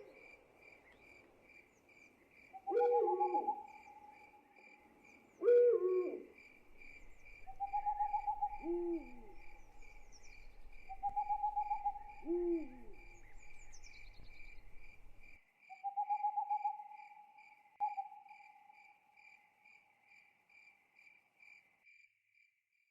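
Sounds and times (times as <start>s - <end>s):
crickets chirping: 0.0s - 22.5s
owl hooting: 2.6s - 4.4s, 5.4s - 15.2s, 15.8s - 17.2s.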